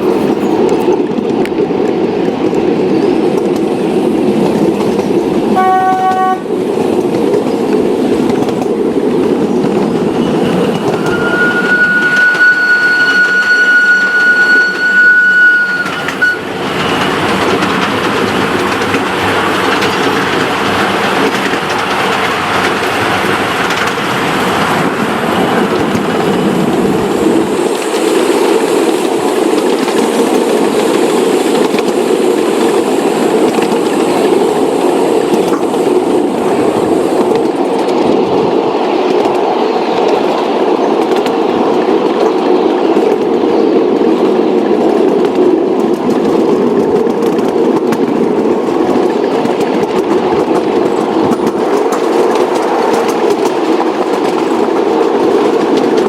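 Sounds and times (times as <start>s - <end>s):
model train clickety-clack: 0.0s - 11.3s, 15.8s - 56.0s
train whistle toot: 5.6s - 6.5s, 10.4s - 16.5s.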